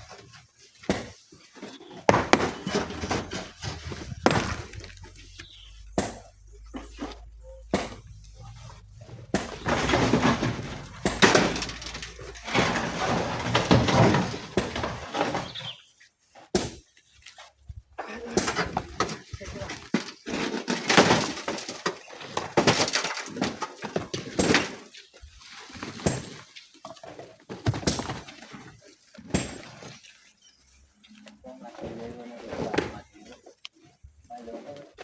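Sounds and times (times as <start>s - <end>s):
rocks clattering and crashing: 0.0s - 15.8s, 18.3s - 30.0s
rock striking rock: 2.1s - 6.3s.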